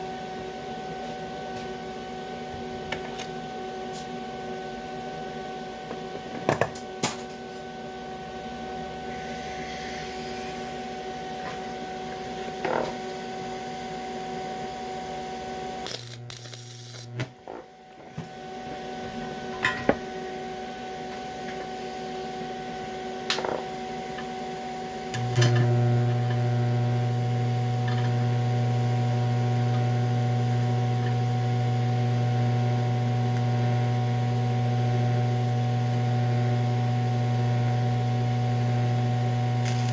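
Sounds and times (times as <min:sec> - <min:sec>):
welding machine humming: 0:09.2 - 0:17.4, 0:25.1 - 0:39.9.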